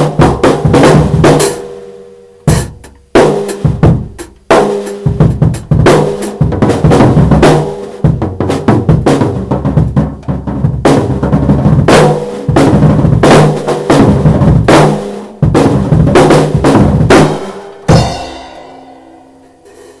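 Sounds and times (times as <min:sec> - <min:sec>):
drum kit played loudly: 0:00.0 - 0:20.0
cymbal ringing: 0:17.5 - 0:20.0.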